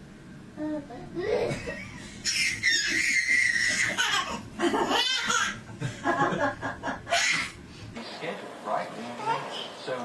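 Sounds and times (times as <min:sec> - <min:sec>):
baby laughing: 0:01.2 - 0:05.6, 0:07.1 - 0:07.6.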